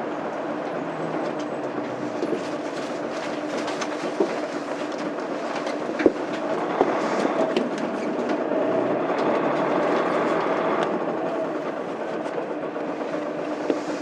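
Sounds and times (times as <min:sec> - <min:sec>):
bus interior running noise: 0:00.0 - 0:14.0.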